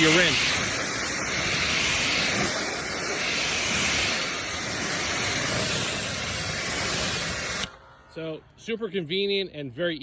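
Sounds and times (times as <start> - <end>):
water spray hissing: 0.0 - 7.8.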